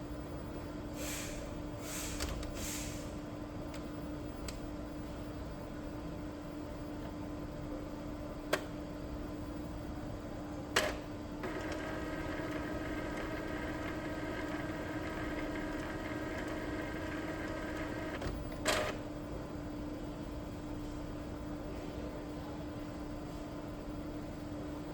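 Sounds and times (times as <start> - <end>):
printer mechanical clicks: 10.8 - 19.0
printer motor whirring: 10.8 - 19.1.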